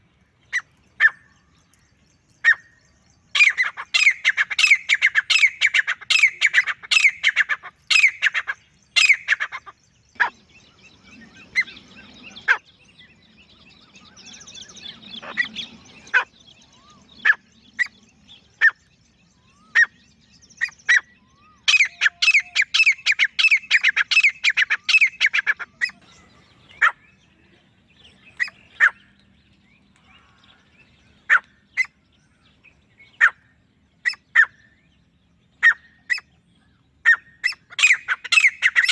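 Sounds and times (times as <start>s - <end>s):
francolin calling: 2.4s - 18.8s, 20.6s - 27.0s, 37.1s - 38.9s.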